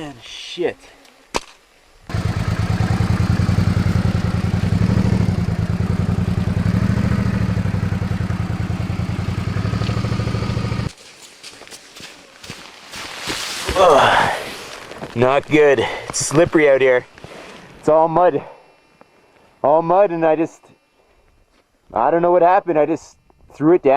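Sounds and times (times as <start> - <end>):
motorcycle engine running: 2.1 - 11.0.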